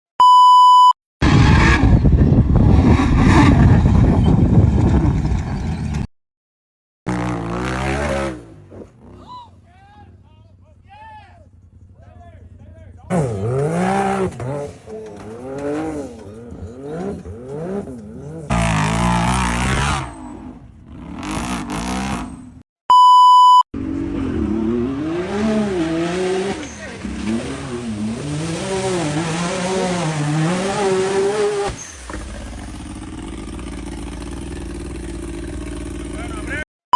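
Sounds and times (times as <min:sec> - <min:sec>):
short electronic beep: 0:00.2 - 0:01.0, 0:22.9 - 0:23.6
rough vehicle engine driving hard: 0:01.2 - 0:06.1, 0:07.1 - 0:22.6, 0:23.8 - 0:36.7.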